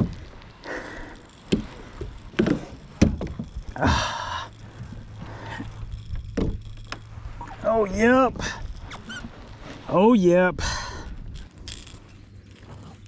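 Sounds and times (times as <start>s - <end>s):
rustling and splashing: 0.0s - 13.0s
knocks and thumps on kayak: 1.5s - 3.5s, 6.3s - 6.6s.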